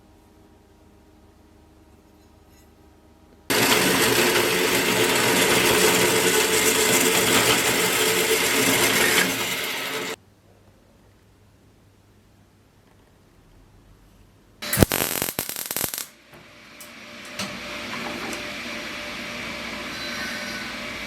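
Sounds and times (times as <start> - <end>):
electric power tool running: 3.5 - 10.2.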